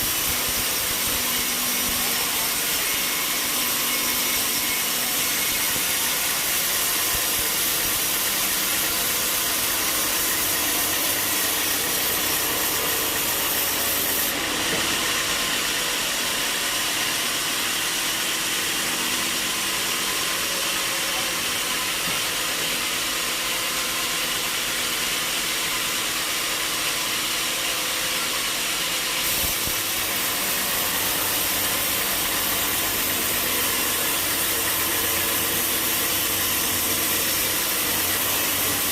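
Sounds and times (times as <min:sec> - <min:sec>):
saw cutting through log: 0:00.0 - 0:38.9.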